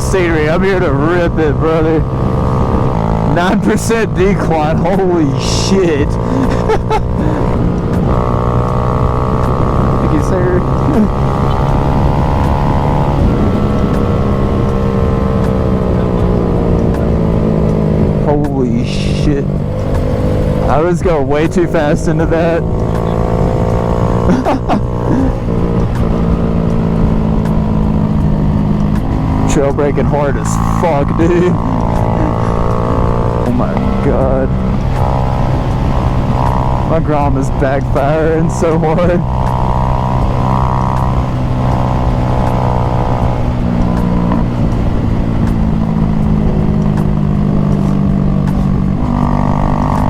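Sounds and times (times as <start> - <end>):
wind rumble on camera: 0.0 - 5.2, 5.9 - 18.5, 19.4 - 50.0
small motorcycle engine running: 0.0 - 50.0
exhaust pops: 15.4 - 50.0.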